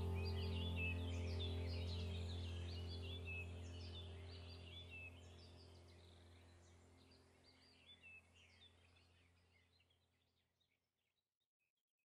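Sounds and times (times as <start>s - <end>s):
low steady hum: 0.0s - 9.2s
faint birdsong: 0.0s - 11.3s.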